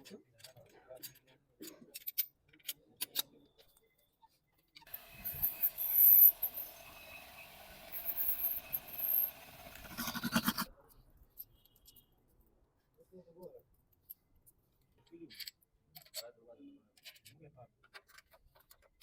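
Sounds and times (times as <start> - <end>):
spark plug being scrubbed: 4.9 - 10.6.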